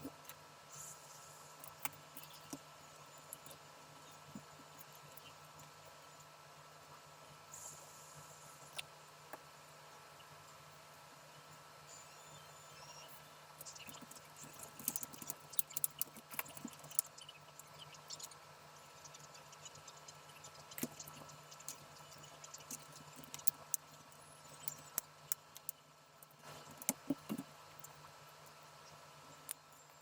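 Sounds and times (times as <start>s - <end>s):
faint steady hum: 0.0s - 30.0s
small clicks and taps: 13.6s - 17.2s, 20.7s - 28.0s.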